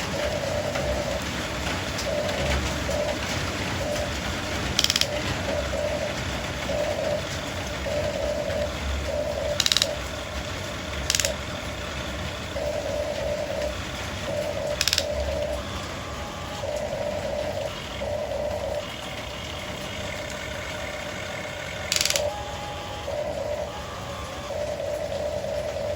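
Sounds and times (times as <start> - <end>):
small electric motors whining: 0.0 - 25.9
ratcheting rattles: 3.8 - 15.3, 18.9 - 22.3.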